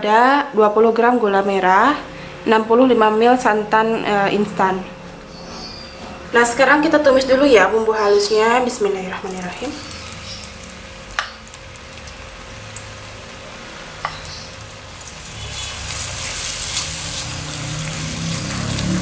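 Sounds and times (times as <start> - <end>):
paste sizzling in hot oil: 9.1 - 19.0
spatula scraping wok: 13.9 - 19.0.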